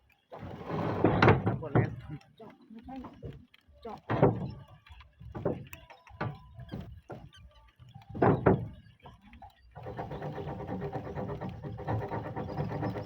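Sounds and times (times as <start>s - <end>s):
roofing sheets knocking and clunking: 0.3s - 2.2s, 2.9s - 9.0s, 9.8s - 13.0s
steady rhythmic rasping: 5.2s - 13.0s.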